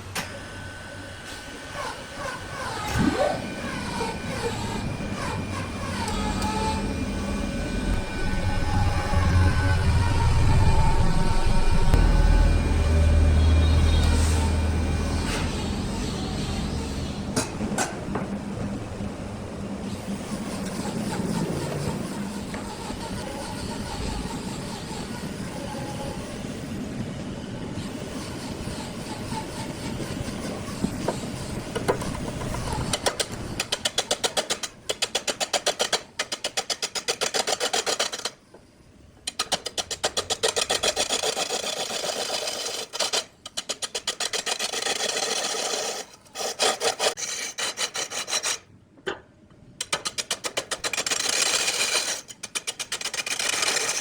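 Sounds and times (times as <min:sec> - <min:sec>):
steady low rumble: 0:07.0 - 0:15.1
sawing strokes on wood: 0:19.9 - 0:26.6, 0:27.8 - 0:38.4, 0:39.4 - 0:48.7, 0:50.6 - 0:54.0.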